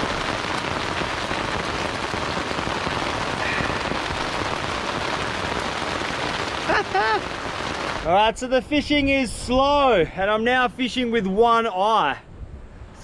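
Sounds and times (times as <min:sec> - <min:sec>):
heavy rain on a tent: 0:00.0 - 0:08.1.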